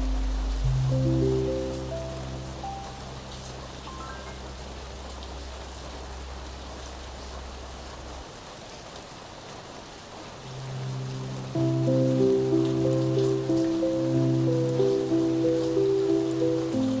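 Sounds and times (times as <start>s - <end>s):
soft background music: 0.0s - 6.4s, 10.4s - 17.0s
rain falling: 0.0s - 17.0s.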